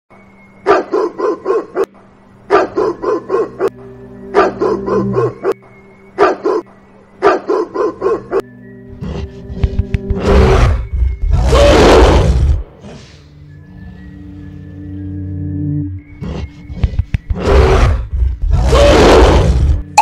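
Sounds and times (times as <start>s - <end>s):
dog barking: 0.7s - 5.6s, 6.2s - 8.4s.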